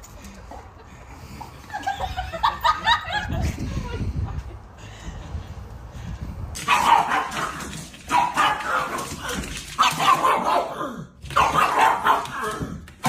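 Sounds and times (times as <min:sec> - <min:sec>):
dog barking: 0:06.6 - 0:12.6.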